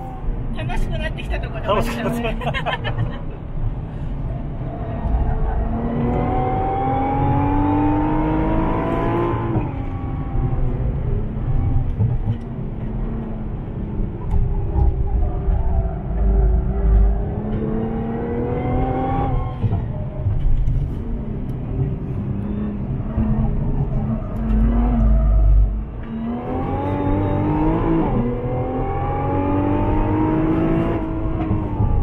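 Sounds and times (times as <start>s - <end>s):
car engine accelerating hard: 4.4s - 32.0s
low rumble: 9.6s - 28.8s.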